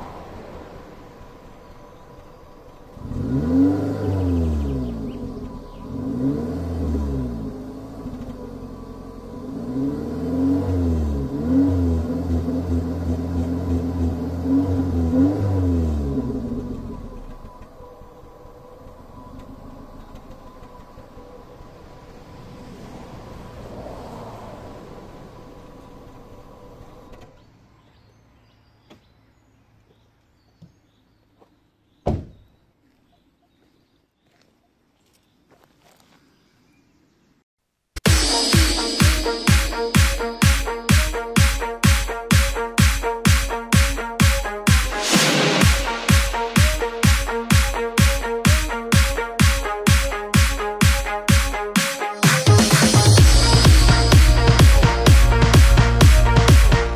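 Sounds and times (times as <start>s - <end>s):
petrol engine revving: 0.0s - 27.4s, 38.0s - 56.9s
loud thump: 32.0s - 32.5s.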